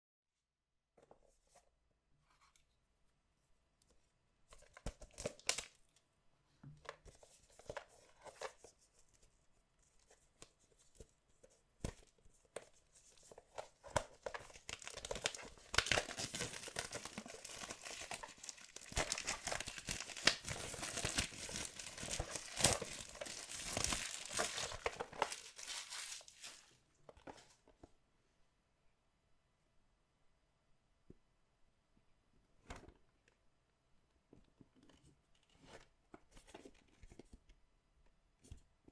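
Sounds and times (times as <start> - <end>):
packaging tearing and crinkling: 14.5 - 26.7.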